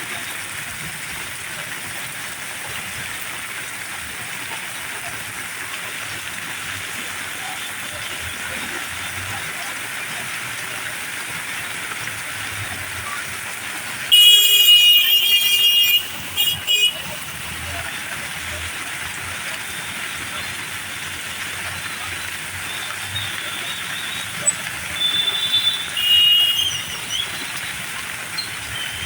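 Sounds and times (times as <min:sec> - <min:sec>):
heavy rain hissing: 0:00.0 - 0:29.0
vehicle horn sounding: 0:14.1 - 0:17.3, 0:25.0 - 0:27.3.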